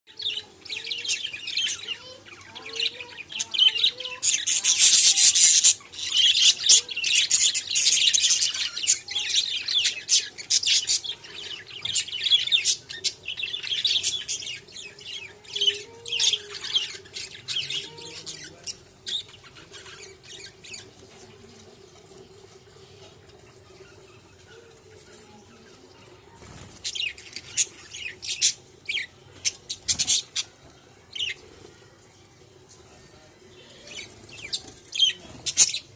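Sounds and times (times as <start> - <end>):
parrot chirping and squawking: 0.3 - 21.0, 26.7 - 31.8.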